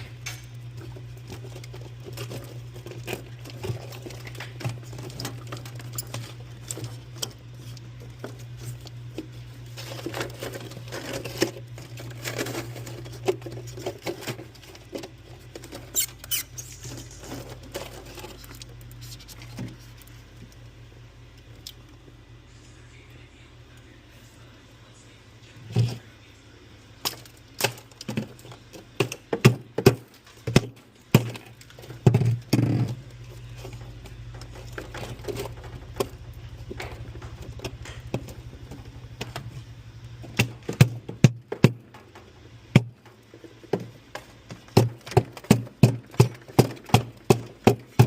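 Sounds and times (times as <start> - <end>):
steady low hum: 0.0 - 48.0
hard parts clicking and knocking: 27.0 - 48.0.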